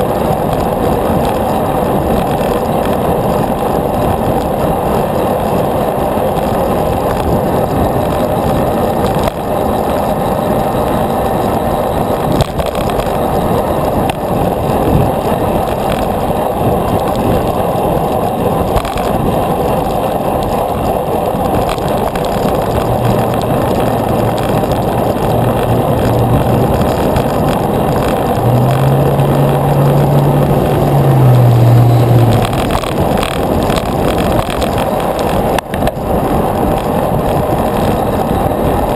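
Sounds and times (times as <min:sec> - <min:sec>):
bicycle tyres on road: 0:00.0 - 0:38.9
wind rushing over microphone: 0:00.0 - 0:38.9
low steady hum: 0:22.4 - 0:34.4.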